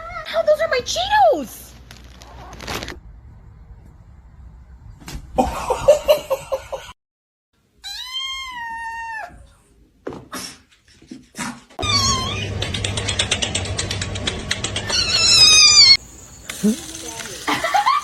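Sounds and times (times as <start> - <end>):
cat meowing: 7.8 - 9.5, 11.8 - 12.5, 14.9 - 16.0.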